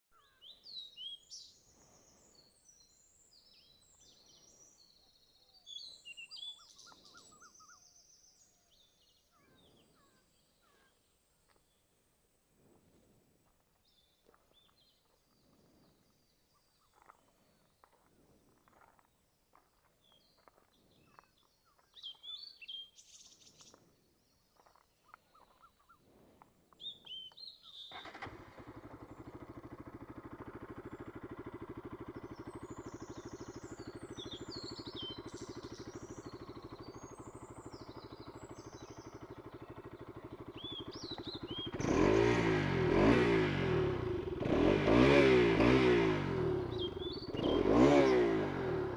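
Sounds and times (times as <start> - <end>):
birds chirping: 13.8 - 48.9
motorcycle engine starting and idling: 27.7 - 48.9
motorcycle engine revving: 27.9 - 48.9.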